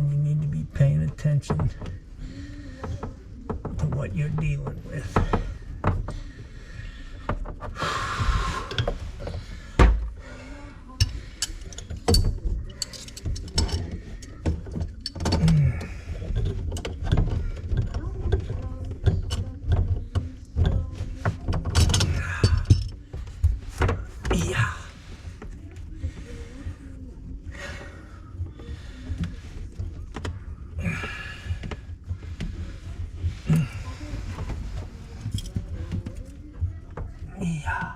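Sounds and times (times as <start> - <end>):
hand tools and metal fittings clattering: 11.0 - 25.3, 33.4 - 36.4.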